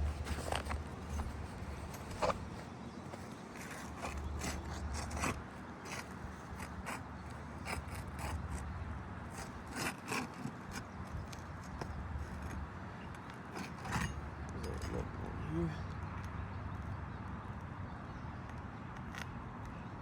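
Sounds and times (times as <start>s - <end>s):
hand tool scraping roof shingles: 0.0s - 15.2s.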